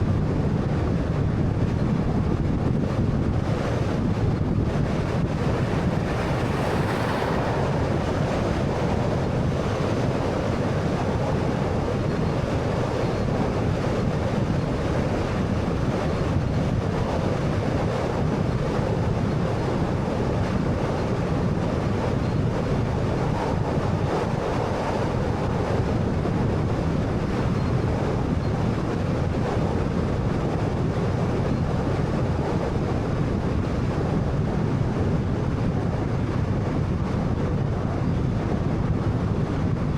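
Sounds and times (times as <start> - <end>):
wind rush: 0.0 - 39.9
tyre road noise: 2.8 - 16.4.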